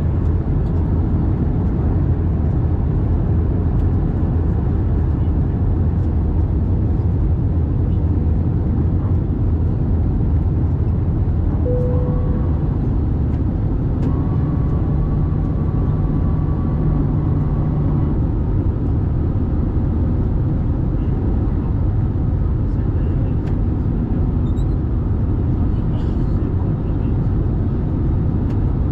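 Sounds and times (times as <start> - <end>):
airplane cabin engine rumble: 0.0 - 28.9
hum with faint whine: 11.5 - 19.2
short tone: 11.6 - 13.1, 14.0 - 17.6.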